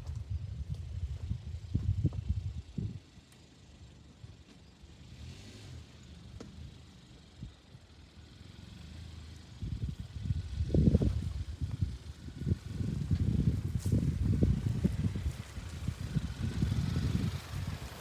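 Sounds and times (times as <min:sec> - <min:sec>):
wind buffeting microphone: 0:00.0 - 0:03.0, 0:09.6 - 0:18.0.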